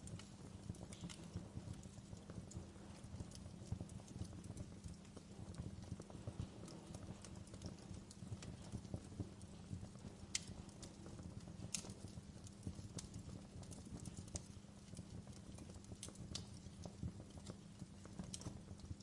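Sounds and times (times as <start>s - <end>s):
low steady rumble: 0.0s - 14.2s
wood fire crackling: 0.0s - 19.0s.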